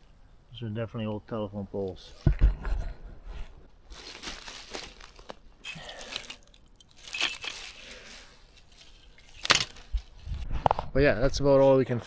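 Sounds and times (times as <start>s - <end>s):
footsteps crunching through undergrowth: 3.9s - 5.4s, 6.0s - 10.2s.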